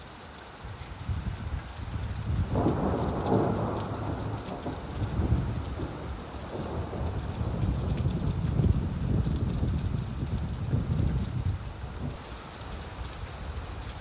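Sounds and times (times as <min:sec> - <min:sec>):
steady rainfall: 0:00.0 - 0:14.0
thunder rumbling: 0:01.9 - 0:12.2.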